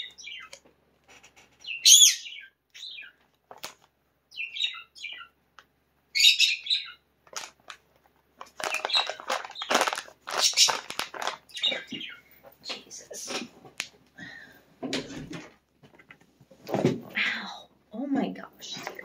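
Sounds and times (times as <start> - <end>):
pet birds chirping: 0.0 - 3.4, 4.2 - 5.4, 6.1 - 7.7, 8.5 - 13.4.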